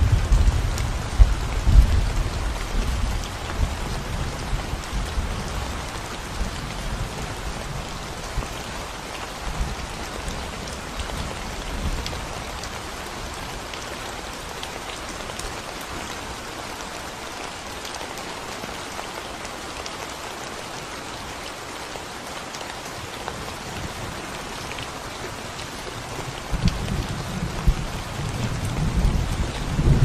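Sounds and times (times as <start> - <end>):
rain on concrete and plants: 0.0 - 30.0.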